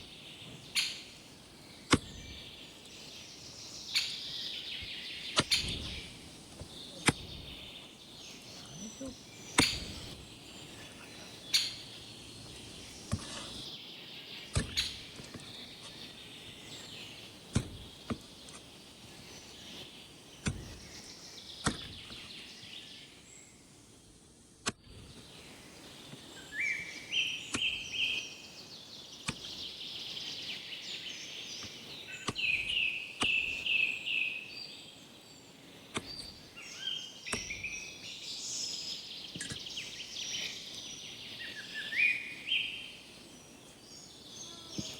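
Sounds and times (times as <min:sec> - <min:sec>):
birds chirping: 0:00.0 - 0:44.9
sharp knocks: 0:17.5 - 0:18.3.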